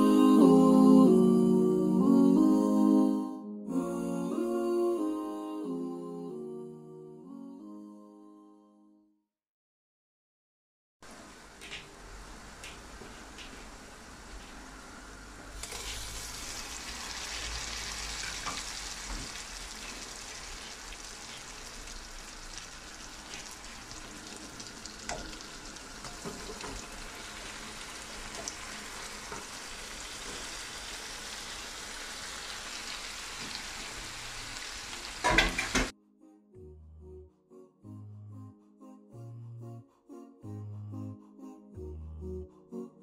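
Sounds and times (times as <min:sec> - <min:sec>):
oil sizzling in a wok: 0:11.1 - 0:35.9.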